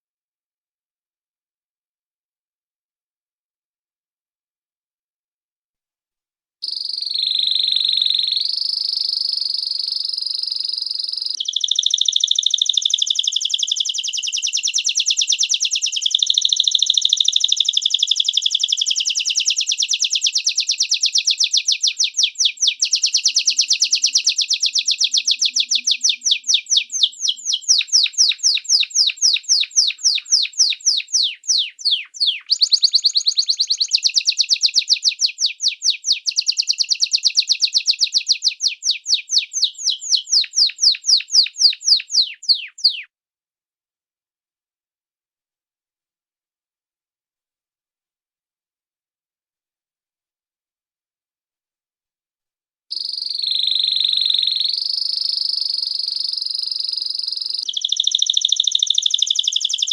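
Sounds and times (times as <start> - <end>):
songbird singing trills: 6.6 - 43.1, 52.9 - 59.9.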